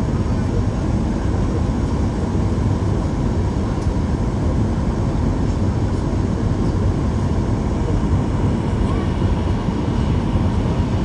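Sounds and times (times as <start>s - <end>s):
jet engine rumble: 0.0s - 11.0s.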